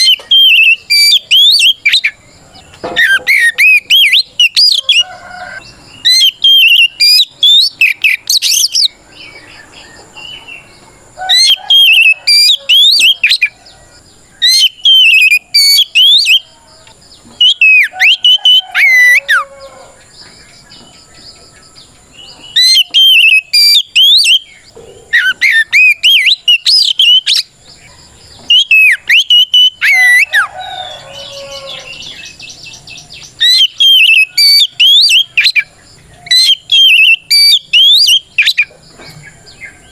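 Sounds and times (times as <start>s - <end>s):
bird singing whistled notes: 0.0s - 38.7s.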